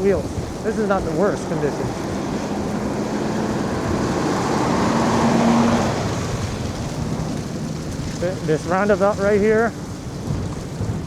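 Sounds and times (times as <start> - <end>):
wheels on snow: 0.0 - 11.0
wind rushing: 0.0 - 11.0.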